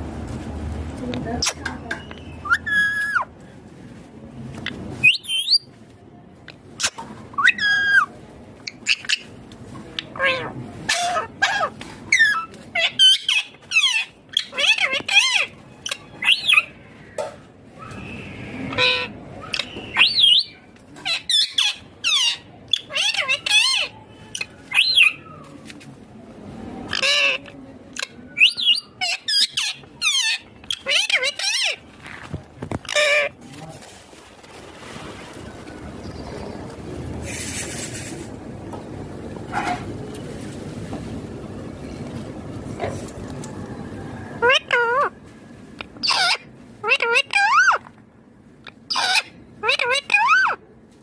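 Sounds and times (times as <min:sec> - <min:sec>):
parrot calls: 0:02.3 - 0:03.3, 0:06.8 - 0:08.1, 0:10.0 - 0:16.8, 0:17.9 - 0:25.3, 0:26.9 - 0:31.8, 0:44.4 - 0:45.2, 0:45.8 - 0:47.9, 0:48.6 - 0:50.6
parakeet squawking: 0:02.4 - 0:03.3, 0:10.0 - 0:16.8, 0:18.7 - 0:25.2, 0:26.9 - 0:31.8, 0:32.8 - 0:33.4, 0:44.4 - 0:45.1, 0:45.9 - 0:47.9, 0:48.7 - 0:50.6.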